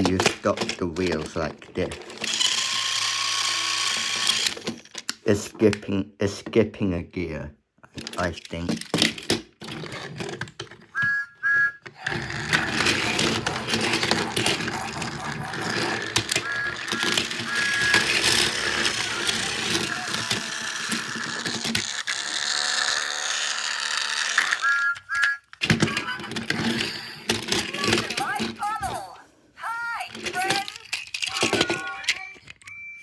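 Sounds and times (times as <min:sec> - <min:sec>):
toy train motor whirring: 0:01.2 - 0:04.8, 0:10.9 - 0:28.9, 0:29.6 - 0:33.0
short high beeps: 0:11.0 - 0:13.6, 0:15.8 - 0:20.1, 0:24.6 - 0:25.5.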